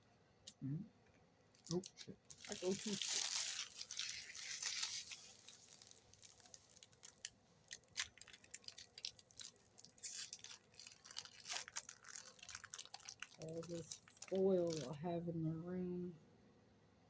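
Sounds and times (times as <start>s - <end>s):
foil wrappers crinkling and tearing: 1.6s - 15.0s.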